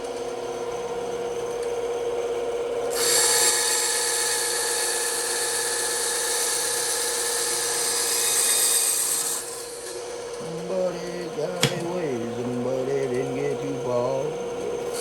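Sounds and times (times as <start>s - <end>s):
bandsaw humming: 0.0s - 15.0s
saw blade cutting wood: 2.9s - 14.1s.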